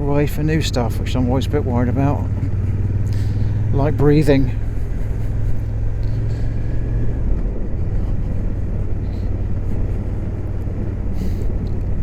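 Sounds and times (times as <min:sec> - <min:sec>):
motorcycle engine running: 0:00.0 - 0:12.0
road rumble: 0:00.0 - 0:12.0
wind noise in helmet: 0:04.3 - 0:12.0.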